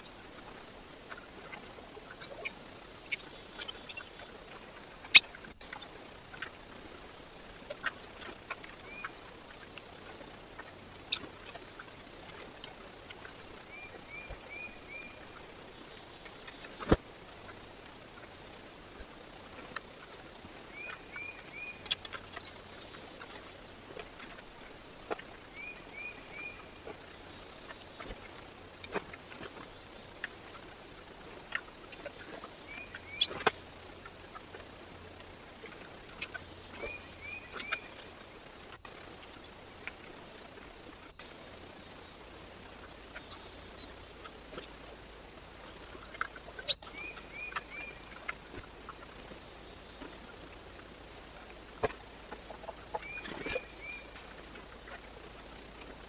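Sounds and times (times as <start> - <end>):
small bird chirping: 0.4 - 54.4.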